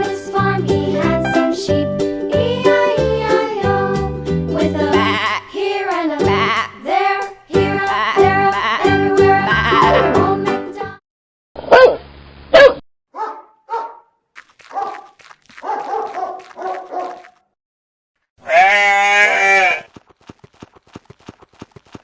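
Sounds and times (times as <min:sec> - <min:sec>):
goat bleating: 0:04.9 - 0:05.6, 0:06.2 - 0:06.8, 0:07.8 - 0:10.3, 0:18.4 - 0:19.9
dog barking: 0:11.6 - 0:17.4.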